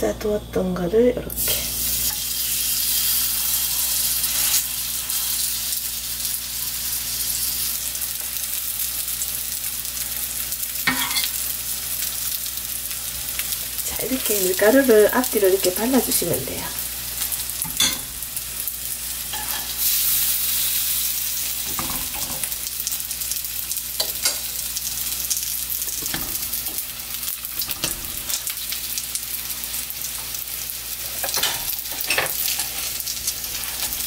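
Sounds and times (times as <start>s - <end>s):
battered slices sizzling in oil: 1.0s - 34.0s
metal tongs tapping a pan: 10.9s - 11.3s, 24.0s - 24.5s, 31.2s - 32.7s.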